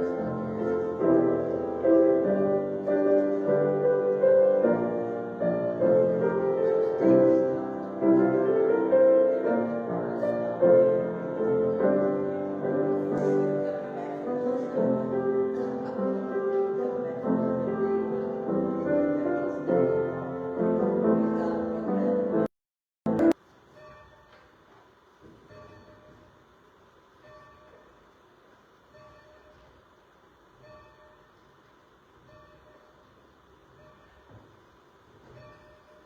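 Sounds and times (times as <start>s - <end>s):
slow piano chords: 0.0s - 22.5s.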